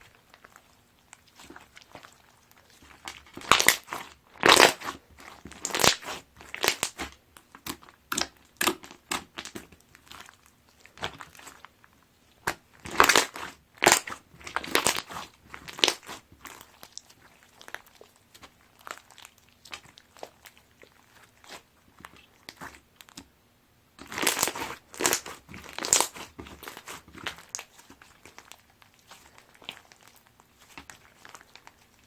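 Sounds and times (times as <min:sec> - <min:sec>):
slime crackling and crunching: 0:00.0 - 0:23.2, 0:24.0 - 0:32.0.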